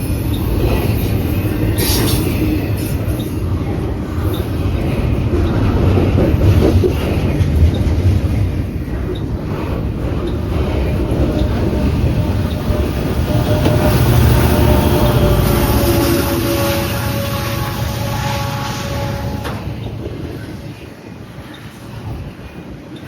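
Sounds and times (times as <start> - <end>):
steady tones: 4.4 - 20.8.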